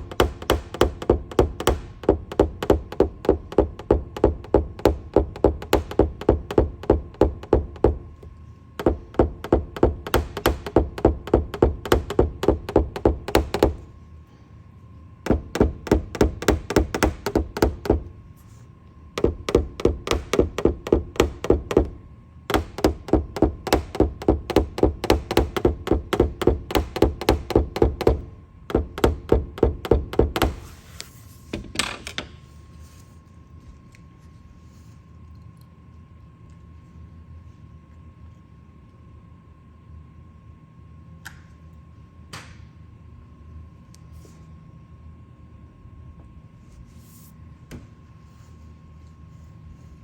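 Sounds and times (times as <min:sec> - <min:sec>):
hammer tapping on sheet metal: 0:00.0 - 0:13.9, 0:15.3 - 0:18.2, 0:19.2 - 0:30.7.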